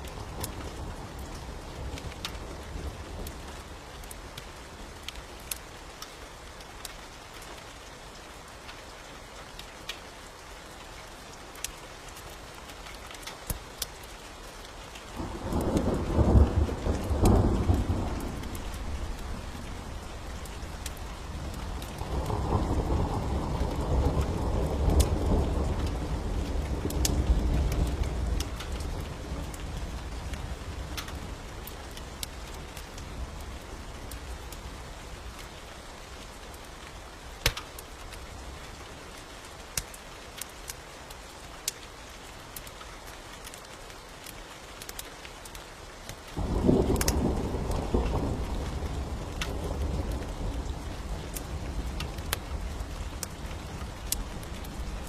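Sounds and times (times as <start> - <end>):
wood fire crackling and popping: 0.0 - 7.5, 11.5 - 22.1, 23.2 - 34.6, 36.6 - 41.8, 42.6 - 55.0
steady rain: 0.0 - 55.0
rolling thunder: 15.2 - 29.6, 46.4 - 55.0.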